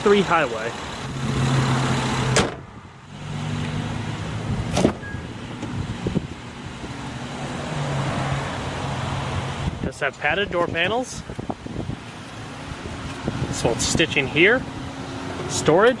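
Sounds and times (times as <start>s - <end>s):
car body clunks: 2.3s - 2.7s, 4.6s - 5.8s.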